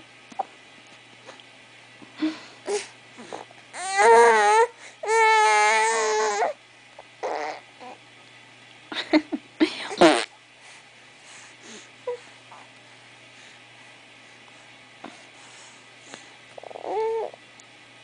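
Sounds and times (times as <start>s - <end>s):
baby babbling: 7.2s - 8.0s, 16.6s - 17.4s.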